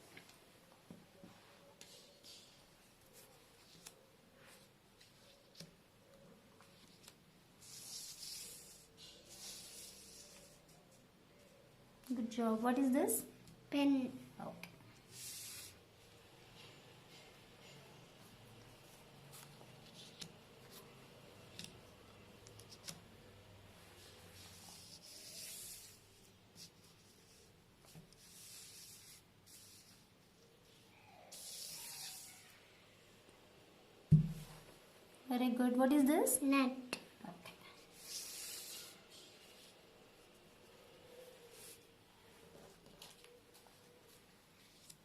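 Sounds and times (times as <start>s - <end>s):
soft rustle: 37.5s - 45.0s.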